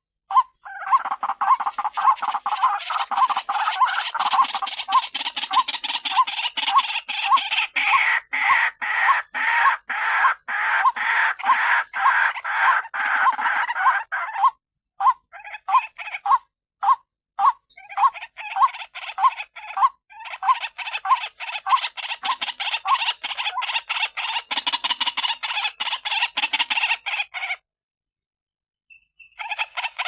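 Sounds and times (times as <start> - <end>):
waterhen calling repeated notes: 0.3 - 27.6, 28.9 - 30.0.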